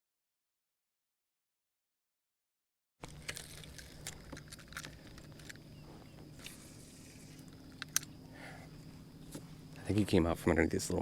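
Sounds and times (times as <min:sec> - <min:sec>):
low steady hum: 0:03.0 - 0:11.0.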